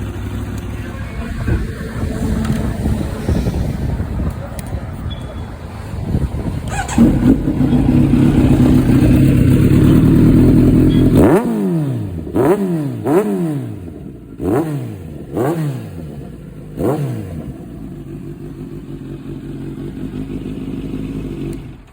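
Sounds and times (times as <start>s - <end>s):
motorcycle engine idling: 0.0s - 12.4s, 16.0s - 21.9s
motorcycle engine revving: 5.9s - 21.9s.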